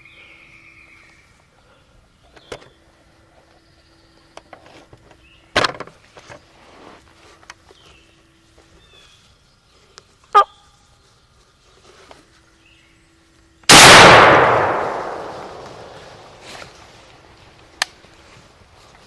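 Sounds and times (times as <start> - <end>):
shotgun blast echoing: 13.7 - 16.4.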